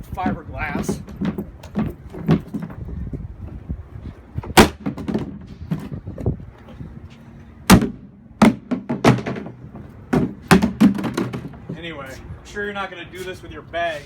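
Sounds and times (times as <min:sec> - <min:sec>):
hard blows on plastic case: 0:04.4 - 0:06.9, 0:07.7 - 0:11.7.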